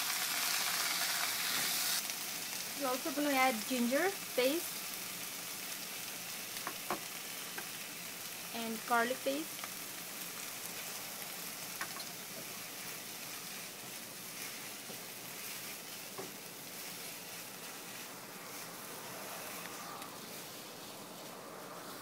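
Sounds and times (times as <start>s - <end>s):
vegetables sizzling in a frying pan: 0.0s - 22.0s.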